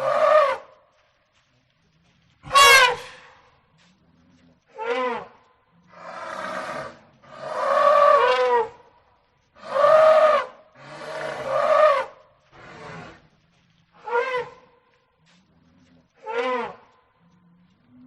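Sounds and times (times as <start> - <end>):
loud animal calls: 2.4 - 3.4, 9.6 - 13.2.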